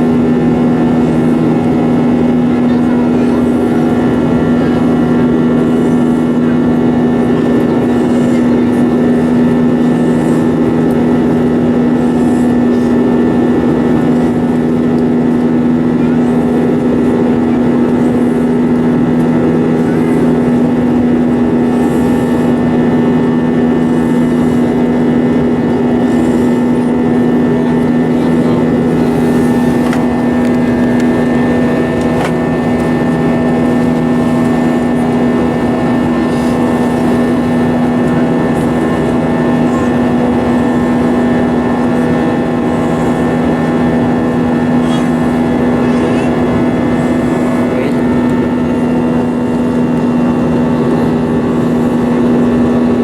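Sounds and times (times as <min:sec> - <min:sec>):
jet engines droning in cabin: 0:00.0 - 0:53.0
low hum tone: 0:00.0 - 0:53.0.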